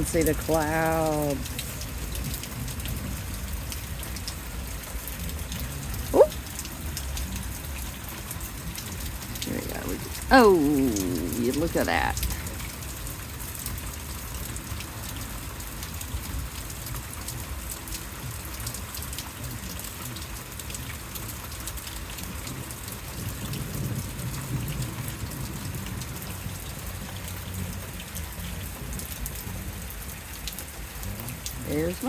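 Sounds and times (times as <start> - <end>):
heavy rain falling: 0.0 - 32.0
low rumble of thunder: 22.4 - 30.2.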